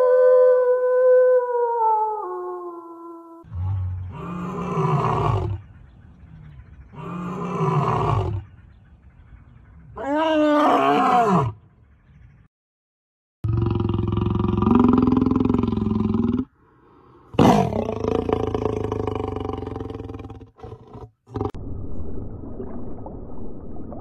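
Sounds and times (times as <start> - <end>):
large animal roaring: 3.5 - 5.6, 13.5 - 16.5.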